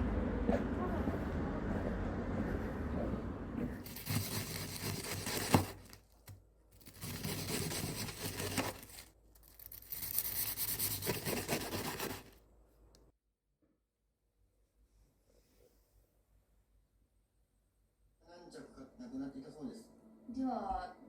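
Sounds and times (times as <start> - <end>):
rustling and scraping: 2.4 - 12.4.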